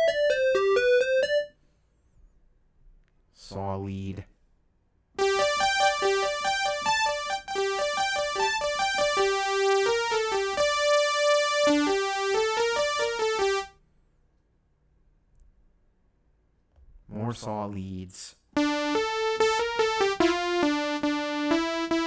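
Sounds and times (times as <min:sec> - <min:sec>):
sawtooth synth lead melody: 0:05.2 - 0:13.7, 0:18.6 - 0:22.0.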